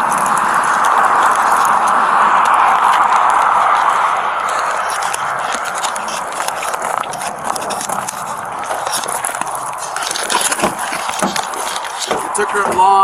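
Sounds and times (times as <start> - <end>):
footsteps: 0.0 - 13.0
gear handling: 4.4 - 13.0
clicks and rustling: 4.5 - 13.0.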